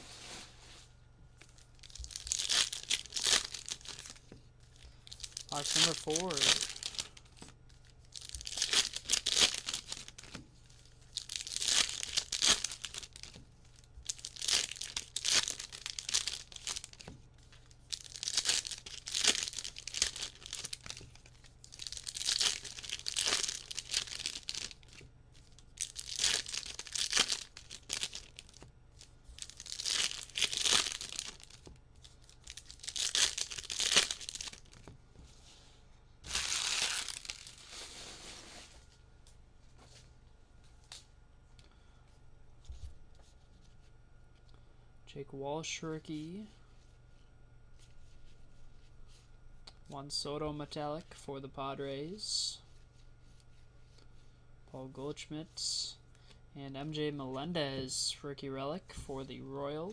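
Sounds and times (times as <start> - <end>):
card pack wrappers tearing and crinkling: 1.4 - 4.3, 5.0 - 7.5, 8.1 - 28.7, 29.3 - 34.9, 36.2 - 38.3.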